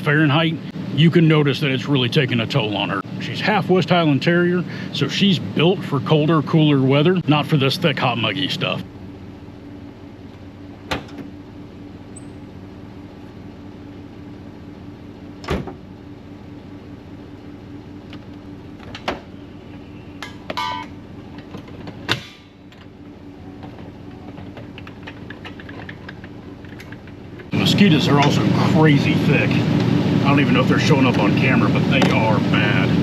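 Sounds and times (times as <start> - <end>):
air conditioning running: 0.0 - 33.0.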